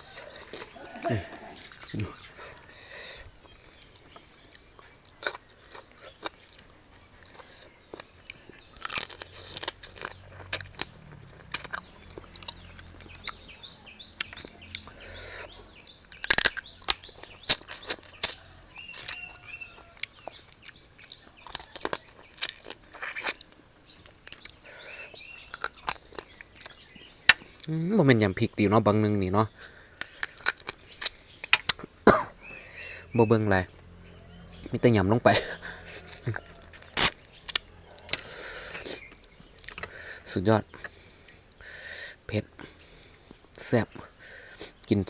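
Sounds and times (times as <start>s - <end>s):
mouth smacks: 0.0s - 19.2s, 35.4s - 41.8s
chewing and crunching: 0.0s - 27.9s, 28.6s - 45.0s.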